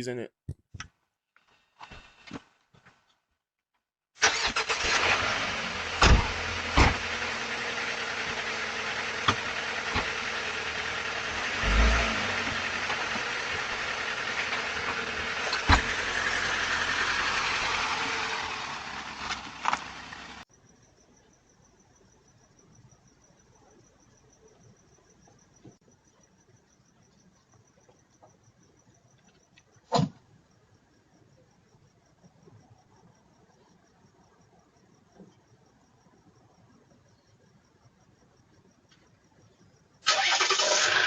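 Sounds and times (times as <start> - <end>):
car engine running: 4.6 - 20.4.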